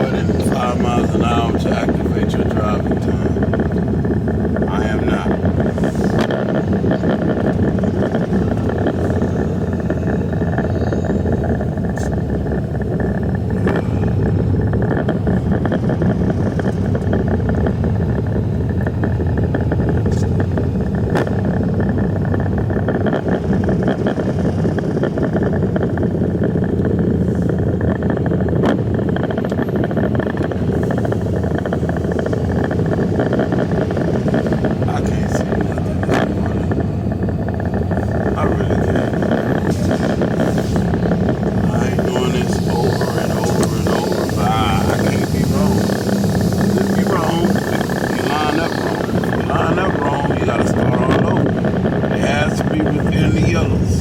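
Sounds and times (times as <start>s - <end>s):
truck diesel engine rumbling: 0.0s - 54.0s.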